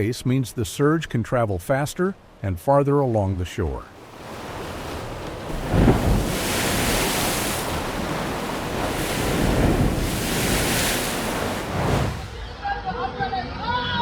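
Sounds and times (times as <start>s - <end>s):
surf rushing in waves: 3.9s - 12.5s
wind buffeting microphone: 4.0s - 12.4s.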